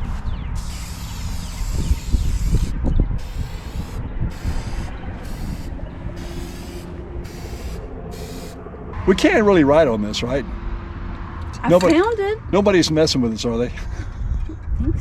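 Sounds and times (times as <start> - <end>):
spray can hissing: 0.6 - 8.6.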